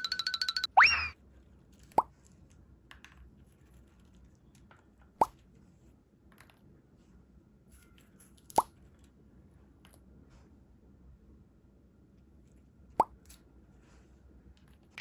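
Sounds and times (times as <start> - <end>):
faint clicks and rustles: 1.3 - 10.6.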